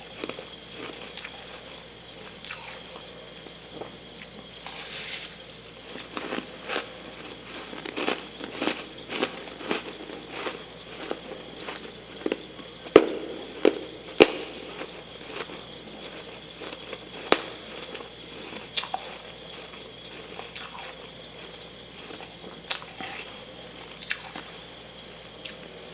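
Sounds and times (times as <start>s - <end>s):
chewing crunchy frost: 0.0s - 25.9s.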